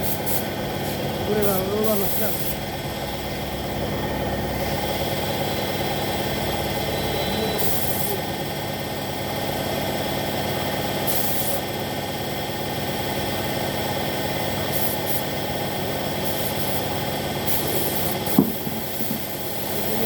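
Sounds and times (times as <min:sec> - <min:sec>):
spray gun hissing: 0:00.0 - 0:02.7, 0:04.6 - 0:08.3, 0:11.0 - 0:11.7, 0:14.2 - 0:20.0
machine hum: 0:00.0 - 0:11.0.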